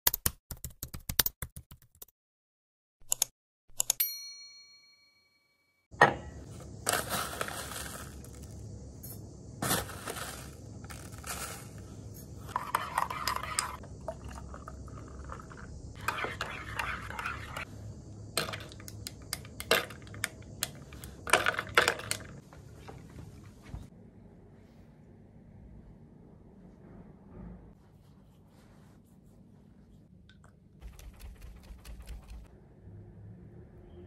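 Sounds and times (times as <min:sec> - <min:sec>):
bell-like ding: 0:04.0 - 0:05.9.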